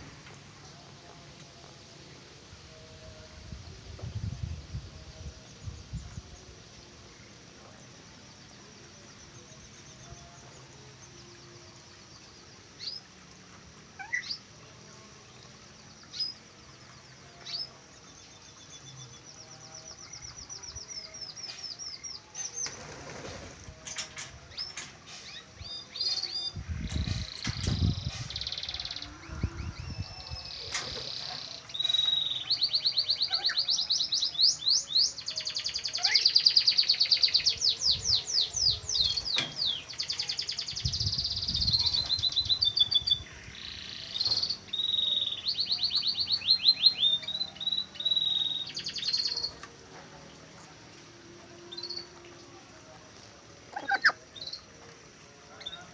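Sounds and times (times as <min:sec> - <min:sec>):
caged birds chirping: 0:15.9 - 0:55.9.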